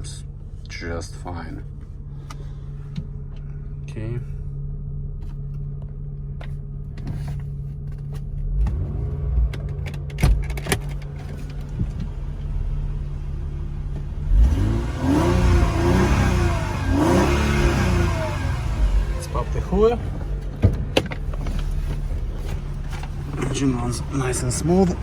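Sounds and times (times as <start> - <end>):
car engine idling and revving: 0.0 - 25.0
sharp clicks and knocks: 9.4 - 12.2.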